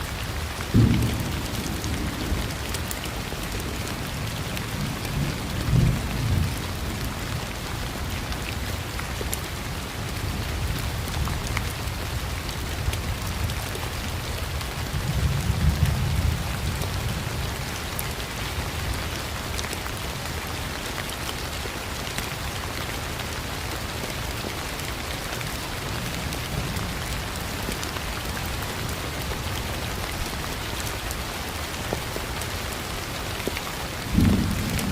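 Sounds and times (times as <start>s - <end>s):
thunder rumbling: 0.0s - 3.0s, 34.0s - 34.9s
steady rain: 0.0s - 34.9s.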